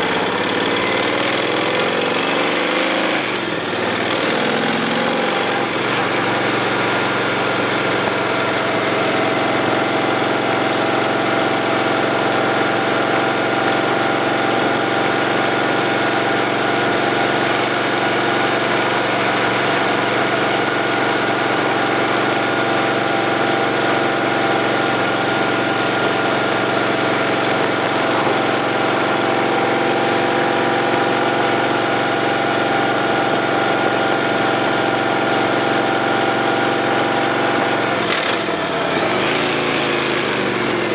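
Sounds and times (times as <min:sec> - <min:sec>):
motorcycle engine idling: 0:00.0 - 0:02.6, 0:03.3 - 0:39.1.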